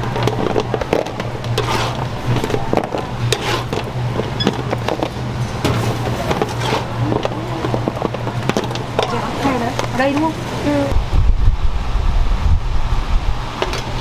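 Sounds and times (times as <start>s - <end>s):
steady low hum: 0.0s - 14.0s
kitchen knocks and clatter: 2.4s - 9.2s.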